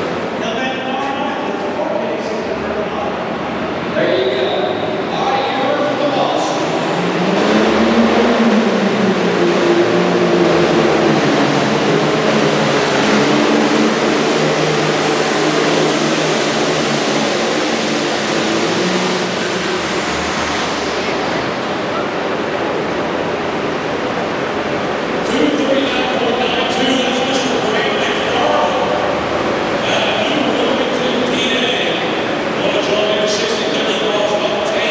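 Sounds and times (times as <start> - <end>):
tractor diesel engine at high revs: 6.8 - 21.9.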